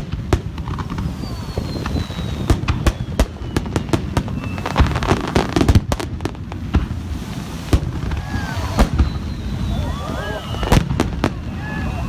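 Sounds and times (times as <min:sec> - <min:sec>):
firework bangs and crackling pops: 0:00.0 - 0:12.0
firework whistle falling in pitch: 0:01.1 - 0:03.6, 0:08.0 - 0:12.0.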